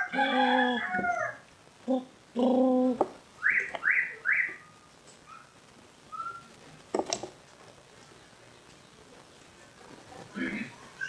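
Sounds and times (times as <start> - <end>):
bird calls and whistled notes: 3.4 - 4.8, 6.1 - 6.5.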